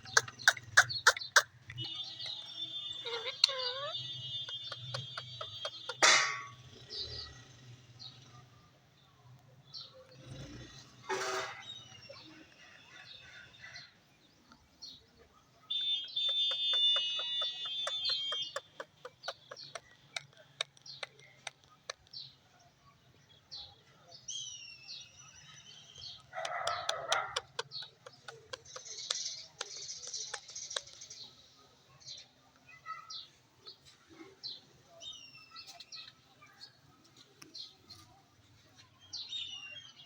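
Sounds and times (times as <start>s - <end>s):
parrot squawking: 0.0s - 6.5s, 16.0s - 20.2s, 26.4s - 29.1s
parrot clicking: 26.4s - 31.1s.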